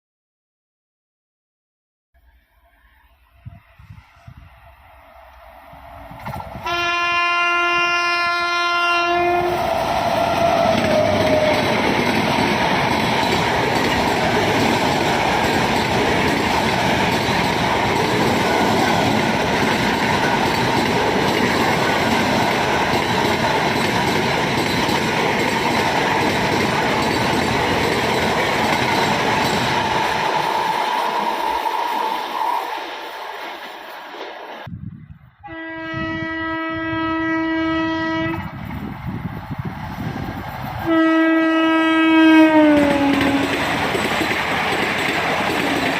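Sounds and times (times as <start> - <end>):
train coaches clickety-clack: 6.0 - 34.7, 38.0 - 45.9
train horn blast: 6.6 - 9.6, 35.4 - 38.5, 40.8 - 43.6.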